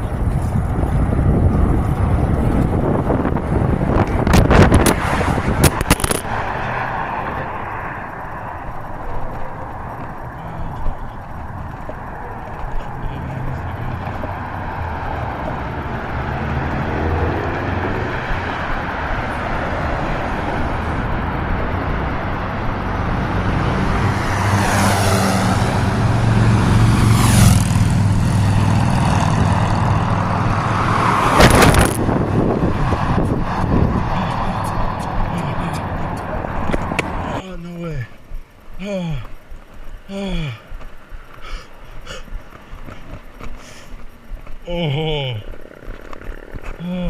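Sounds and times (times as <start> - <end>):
vehicle rushing past: 0.0 - 37.4
road and wind noise: 0.0 - 47.0
vehicle engine approaching: 0.0 - 47.0.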